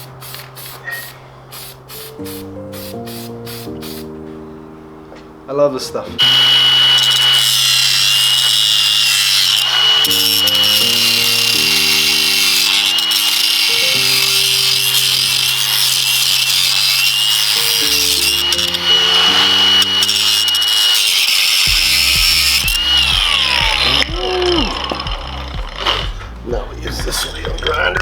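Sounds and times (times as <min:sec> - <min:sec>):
background music: 0:00.0 - 0:28.0
power grinder whining: 0:06.0 - 0:28.0.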